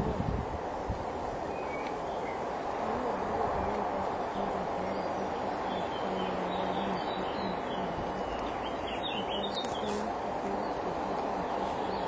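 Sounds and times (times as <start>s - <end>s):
steady background hiss: 0.0s - 12.0s
small bird chirping: 3.6s - 12.0s.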